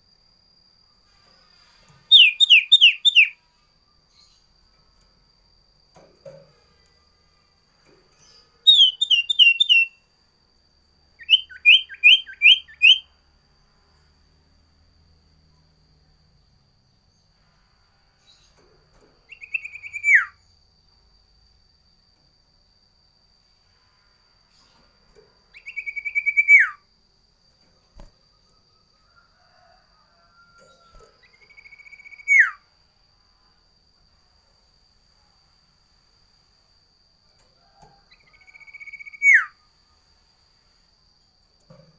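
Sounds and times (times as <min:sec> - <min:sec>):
bird whistling sharp high notes: 0:02.1 - 0:03.3, 0:08.7 - 0:09.9.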